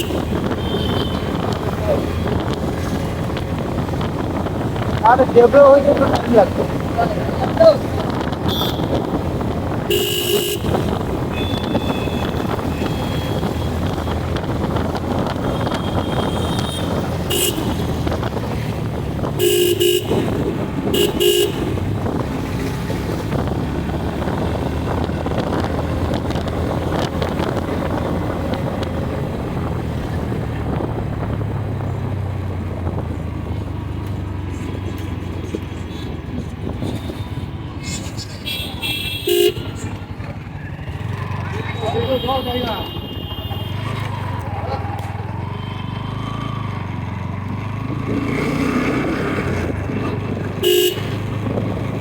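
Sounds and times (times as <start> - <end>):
vehicle horn honks: 0.0 - 1.5, 8.4 - 9.2, 9.8 - 13.8, 15.4 - 18.1, 19.3 - 21.8, 38.4 - 40.1, 41.7 - 44.1, 50.6 - 51.3
motorbike engine: 0.0 - 52.0.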